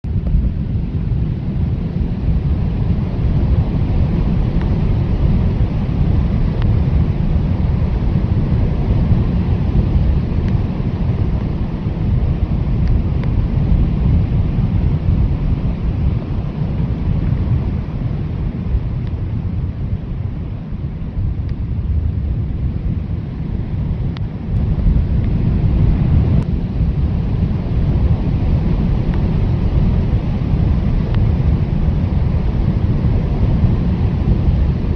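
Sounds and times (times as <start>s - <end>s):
blizzard wind blowing hard: 0.0s - 34.9s.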